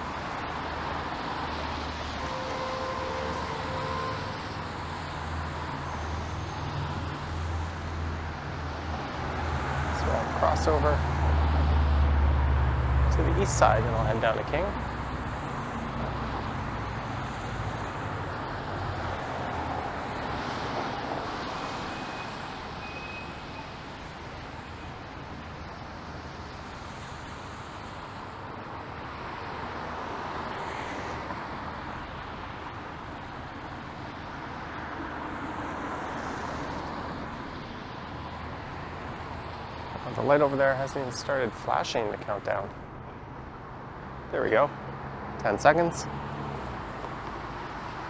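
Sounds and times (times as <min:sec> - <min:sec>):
tyres hissing on wet road: 0:00.0 - 0:42.7, 0:44.4 - 0:48.0.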